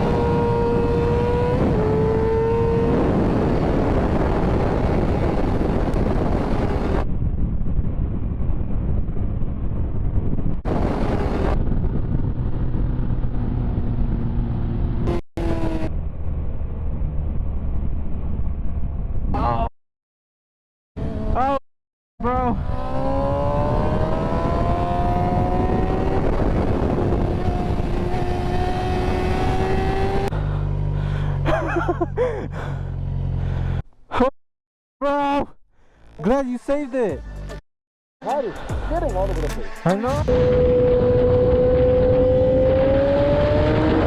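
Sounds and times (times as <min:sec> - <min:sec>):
wind rumble on microphone: 0:00.0 - 0:19.7, 0:22.2 - 0:30.4, 0:40.1 - 0:44.0
dense rushing noise: 0:38.4 - 0:44.0.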